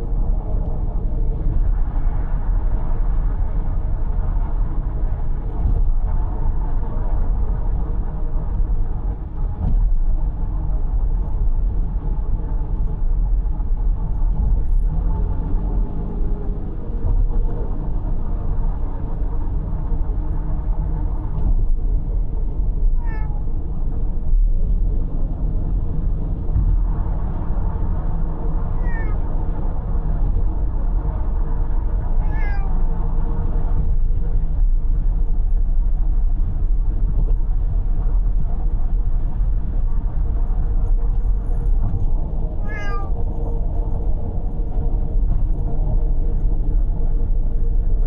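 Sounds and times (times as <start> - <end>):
car driving on road: 0.0 - 48.0
cat meowing: 23.0 - 23.4, 28.8 - 29.2, 32.2 - 32.8, 42.6 - 43.2.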